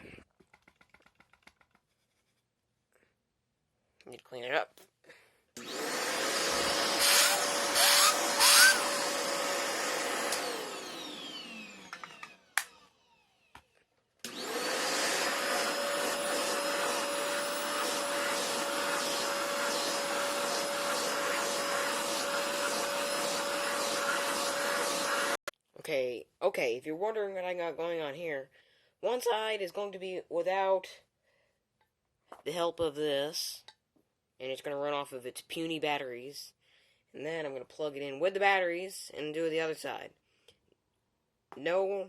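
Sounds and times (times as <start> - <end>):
handheld vacuum whining: 5.6 - 25.5.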